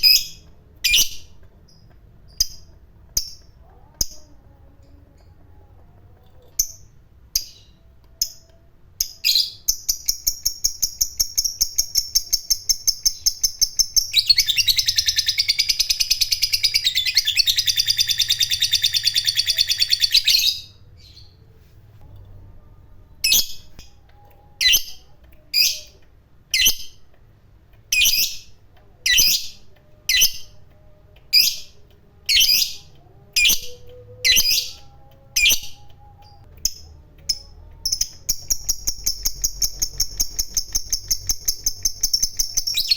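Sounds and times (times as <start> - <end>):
lovebird sharp chirps: 9.0 - 21.3, 32.3 - 42.9.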